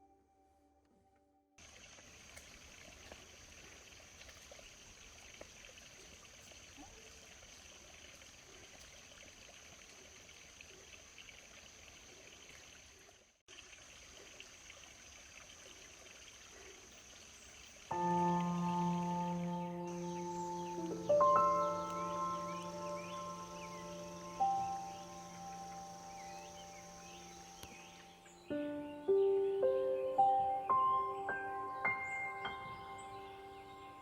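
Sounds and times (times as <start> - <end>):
forest stream rushing: 17.7 - 28.5
thin high tone: 17.9 - 28.1
soft music with ringing tones: 17.9 - 34.0.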